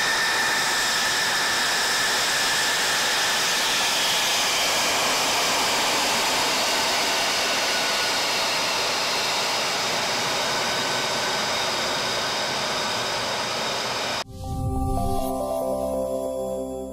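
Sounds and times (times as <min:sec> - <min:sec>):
jet engine roar: 0:00.0 - 0:15.0
high whining tones: 0:13.1 - 0:16.1.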